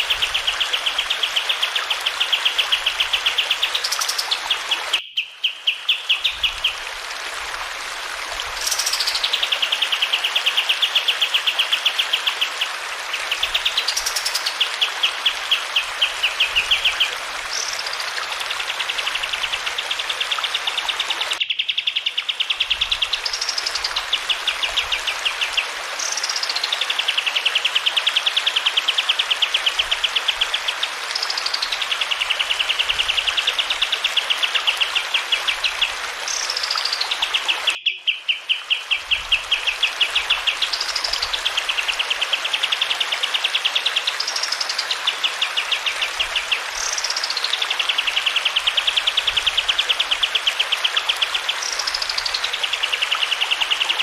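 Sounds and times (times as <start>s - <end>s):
running water: 0.0s - 21.4s, 22.1s - 37.8s, 38.5s - 54.0s
songbird singing trills: 4.9s - 6.5s, 37.7s - 39.4s.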